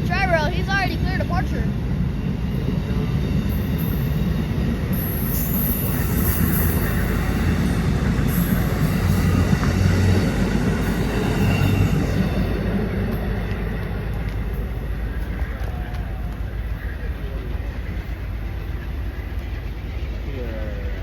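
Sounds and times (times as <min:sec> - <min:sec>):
train wheels rumbling on rail: 0:00.0 - 0:21.0
high wheel squeal: 0:02.5 - 0:13.5.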